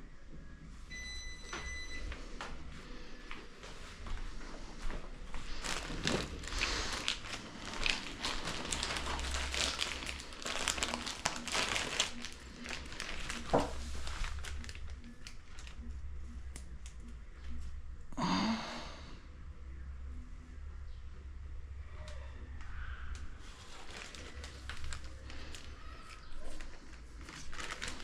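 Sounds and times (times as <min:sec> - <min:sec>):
packaging crinkling and rustling: 0:04.8 - 0:16.6, 0:23.4 - 0:28.0.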